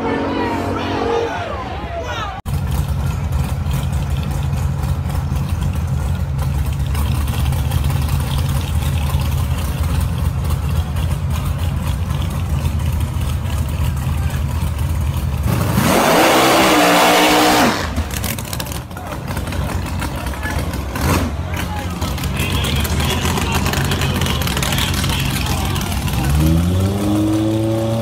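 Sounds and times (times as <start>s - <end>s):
race car engines idling: 0.0s - 28.0s
engine revving sharply: 15.4s - 18.7s, 20.0s - 28.0s.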